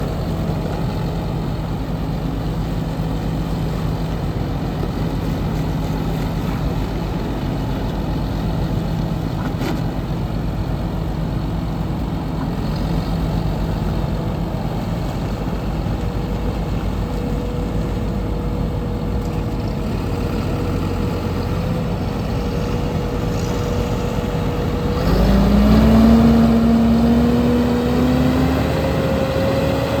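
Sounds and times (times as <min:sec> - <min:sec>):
tractor diesel engine revving: 0:19.8 - 0:30.0.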